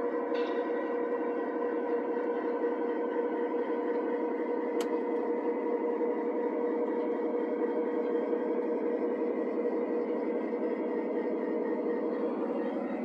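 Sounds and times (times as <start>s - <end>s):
model train electric hum: 0.0s - 13.0s.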